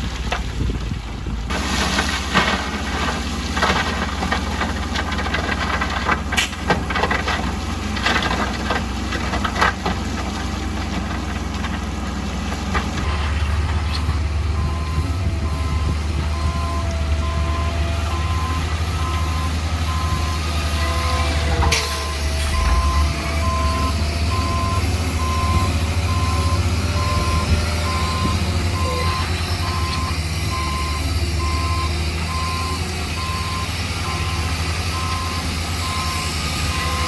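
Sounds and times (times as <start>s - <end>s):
engine rumble: 0.0s - 37.0s
reversing alarm beeping: 14.0s - 37.0s.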